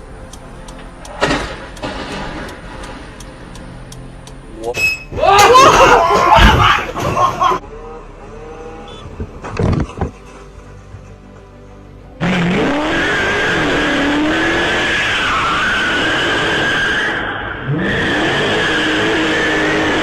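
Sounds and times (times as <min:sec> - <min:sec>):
car engine revving: 0:00.0 - 0:04.6, 0:07.5 - 0:10.9, 0:12.1 - 0:20.0
tyres squealing: 0:08.4 - 0:10.1.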